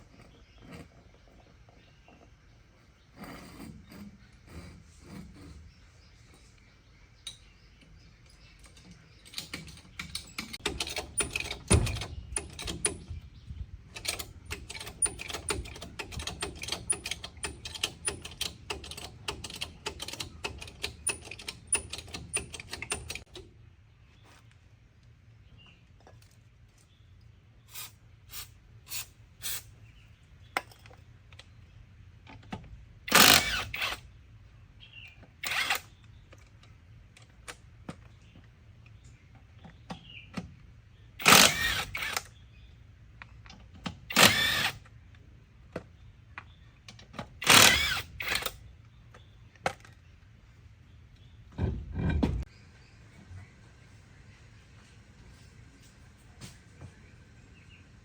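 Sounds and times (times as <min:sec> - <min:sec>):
hand tools clicking on metal: 0:13.9 - 0:23.4.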